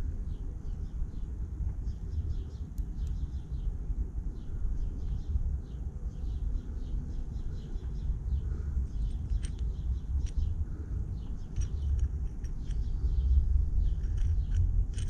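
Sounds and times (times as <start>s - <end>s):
low outdoor rumble: 0.0s - 15.0s
small bird chirping: 0.2s - 15.0s
light clicks of parts handled: 2.6s - 3.4s, 8.7s - 15.0s.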